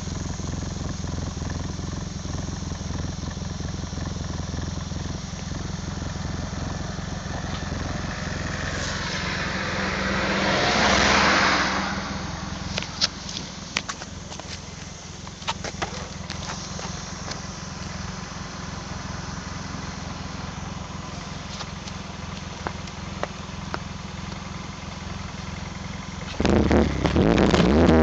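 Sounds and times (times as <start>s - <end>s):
car engine idling: 0.0s - 28.0s
loud rushing sound: 8.0s - 13.8s.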